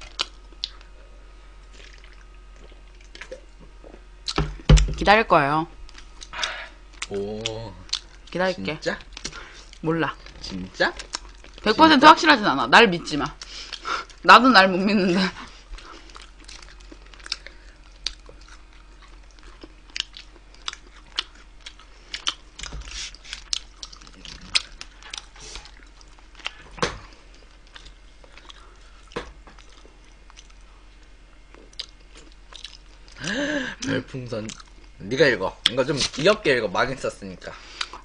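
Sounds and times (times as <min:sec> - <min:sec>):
chewing and biting roast chicken: 0:15.6 - 0:33.2.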